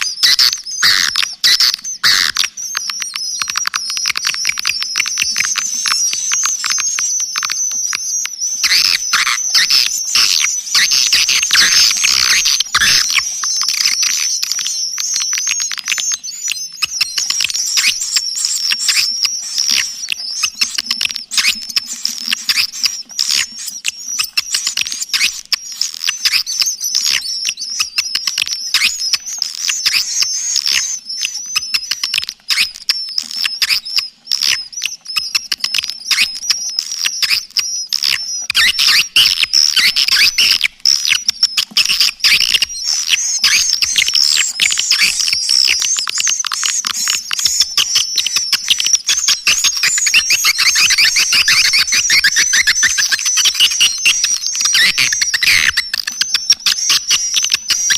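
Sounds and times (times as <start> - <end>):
twittering swiftlet chirps: 4.2 - 25.3, 41.8 - 57.9.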